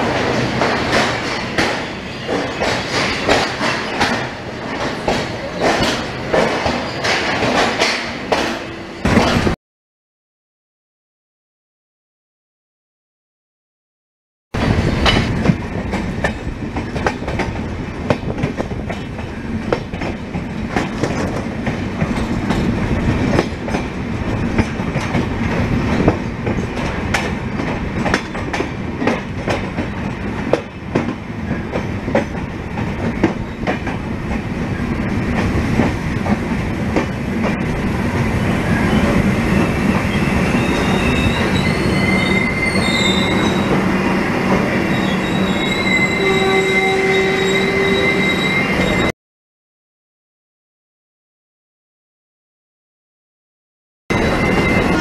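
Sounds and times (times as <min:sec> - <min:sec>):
train running on rails: 0:00.0 - 0:09.6, 0:14.6 - 0:49.1, 0:54.1 - 0:55.0
high wavering wheel squeal: 0:38.4 - 0:43.8, 0:44.9 - 0:49.1, 0:54.1 - 0:55.0.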